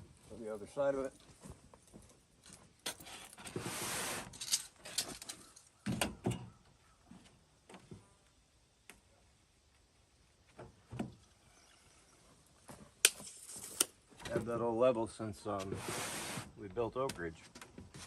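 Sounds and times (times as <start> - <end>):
scraping rub on foam board: 3.5 - 4.3, 15.6 - 16.6.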